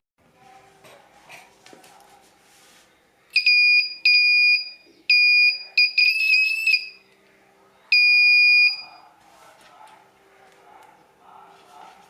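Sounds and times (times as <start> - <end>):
high-pitched buzzer beeps: 3.4 - 7.0.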